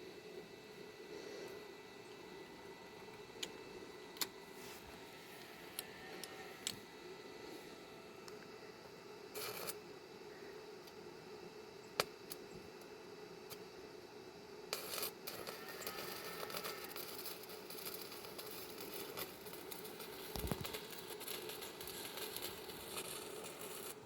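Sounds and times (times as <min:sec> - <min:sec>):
distant welding arc crackling: 0:00.0 - 0:24.0
scrape: 0:04.5 - 0:05.4, 0:21.3 - 0:24.0.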